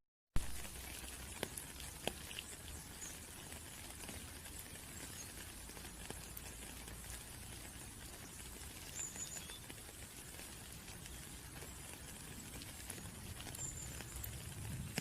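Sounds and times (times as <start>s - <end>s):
light rain hissing: 0.4s - 15.0s
raindrops ticking: 0.4s - 15.0s.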